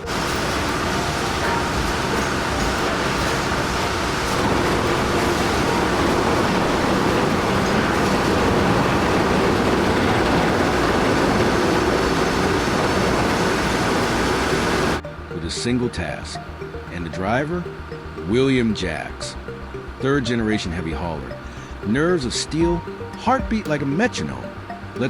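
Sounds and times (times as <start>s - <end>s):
heavy vehicle rumbling: 0.0s - 15.4s.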